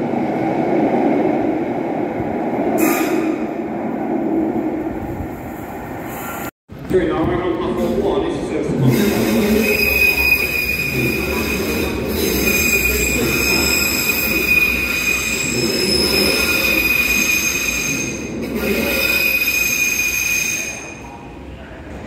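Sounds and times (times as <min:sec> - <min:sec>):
train rumbling: 0:00.0 - 0:22.0
train brakes squealing: 0:02.8 - 0:03.4, 0:08.9 - 0:21.2.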